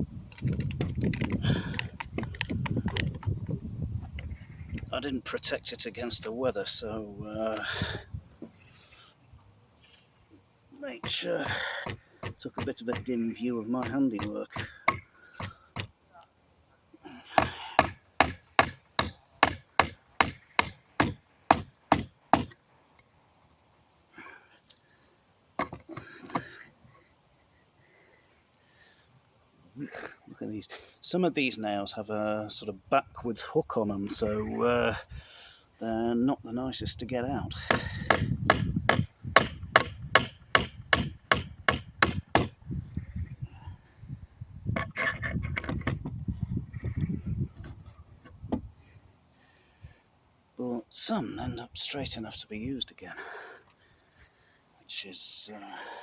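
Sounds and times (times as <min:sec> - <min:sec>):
hammer striking wood: 0:11.0 - 0:13.1, 0:13.8 - 0:15.9, 0:17.4 - 0:22.6, 0:37.7 - 0:42.5.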